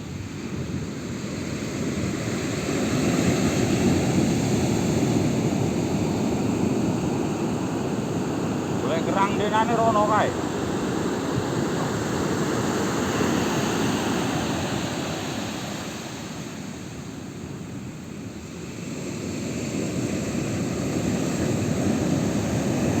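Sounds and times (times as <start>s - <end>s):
beach surf: 0.0s - 23.0s
wind: 0.0s - 23.0s.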